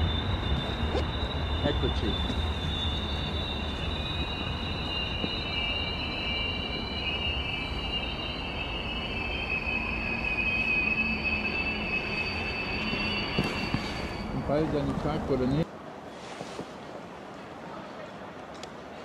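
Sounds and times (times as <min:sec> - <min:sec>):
high metallic squeal: 0:00.0 - 0:15.4
train rumble: 0:00.0 - 0:19.0.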